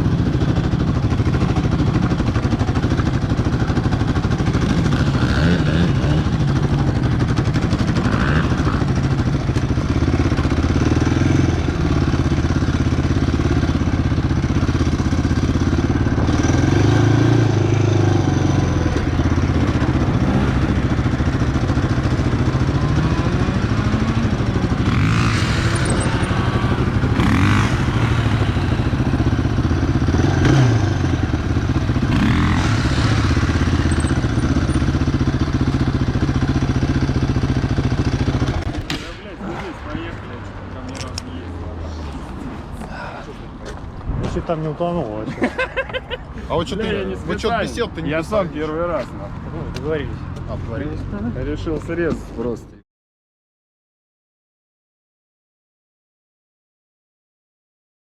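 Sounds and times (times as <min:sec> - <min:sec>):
atv engine revving: 0:00.0 - 0:41.8.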